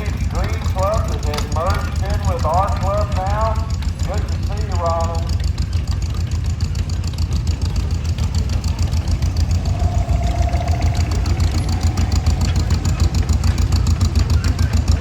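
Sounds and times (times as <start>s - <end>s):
tractor engine running: 0.0s - 14.8s.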